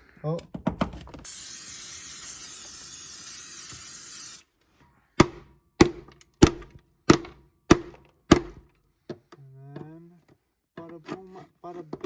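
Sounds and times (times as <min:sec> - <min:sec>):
aerosol spray hissing: 0:01.3 - 0:04.4.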